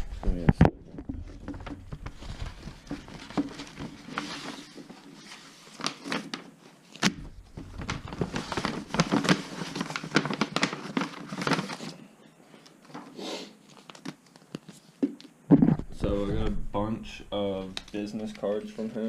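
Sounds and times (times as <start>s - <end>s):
packaging crinkling and tearing: 1.4s - 12.0s, 13.6s - 14.8s.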